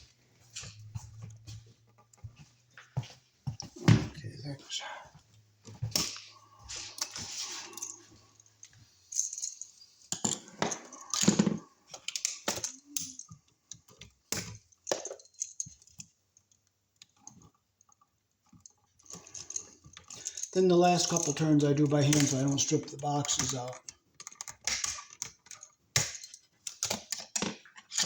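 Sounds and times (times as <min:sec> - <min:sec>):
clicks and clatter of handling parts: 0:05.6 - 0:28.0.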